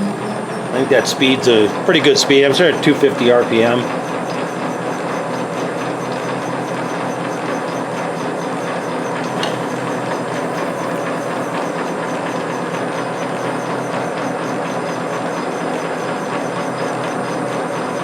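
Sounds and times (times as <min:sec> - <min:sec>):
faint even ticking: 0:00.0 - 0:05.2
metal lathe running: 0:00.0 - 0:18.0.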